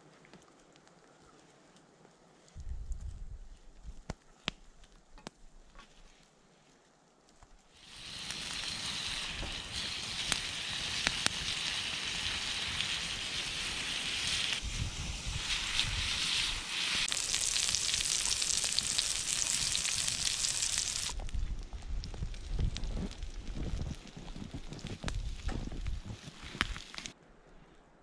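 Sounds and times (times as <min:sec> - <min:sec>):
campfire crackling: 0:00.0 - 0:27.2
vegetables sizzling in frying pan: 0:07.8 - 0:21.2.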